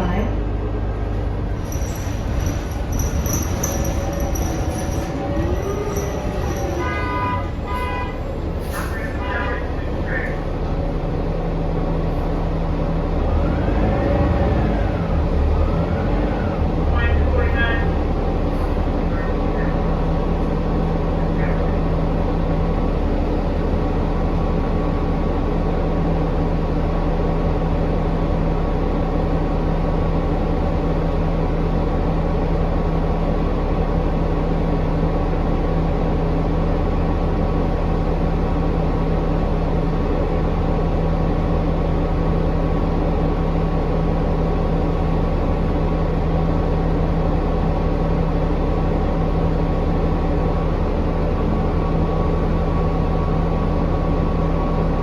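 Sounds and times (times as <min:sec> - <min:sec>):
bus drivetrain drone: 0:00.0 - 0:55.0
steady whining tones: 0:01.6 - 0:08.4.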